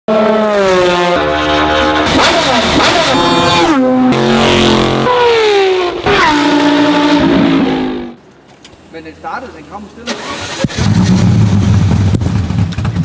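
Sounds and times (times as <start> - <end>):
car engine at high revs: 2.0 - 8.2.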